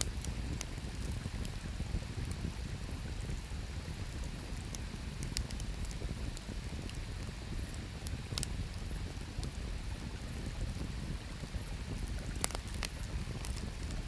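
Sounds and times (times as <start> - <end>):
campfire crackling: 0.0 - 14.0
sharp pops of fire: 12.2 - 14.0.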